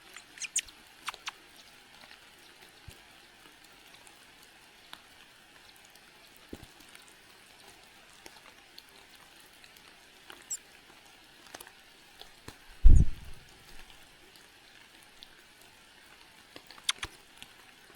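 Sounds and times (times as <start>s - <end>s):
faint high bird chirps: 0.0s - 1.3s, 12.8s - 13.4s, 16.8s - 17.1s
low hiss: 12.7s - 13.8s
light clicks: 16.8s - 17.1s.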